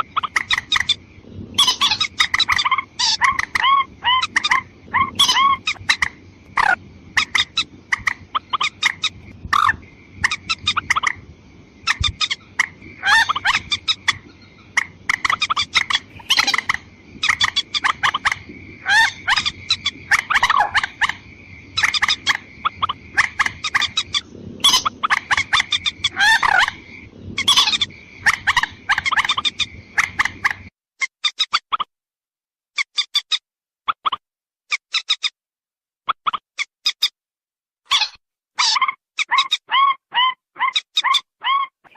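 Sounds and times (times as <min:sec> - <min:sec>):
rail bird clucking calls: 0:00.0 - 0:01.0, 0:01.6 - 0:11.2, 0:11.8 - 0:30.7.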